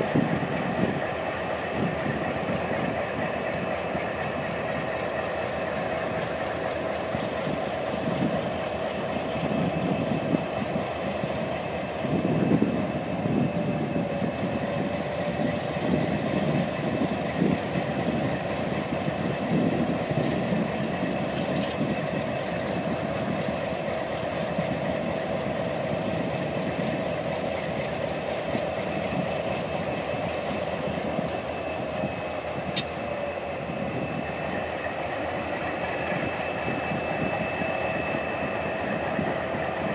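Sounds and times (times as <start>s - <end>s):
diesel locomotives growling: 0.0s - 39.9s
steady whining tones: 0.0s - 39.9s
sharp click: 32.7s - 33.0s.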